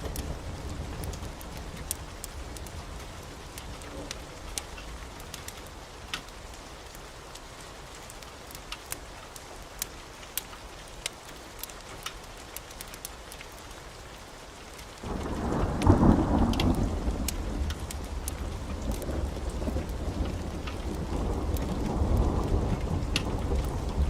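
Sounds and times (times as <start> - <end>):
heavy rain hissing: 15.0 - 24.0
thunder clap: 15.0 - 24.0.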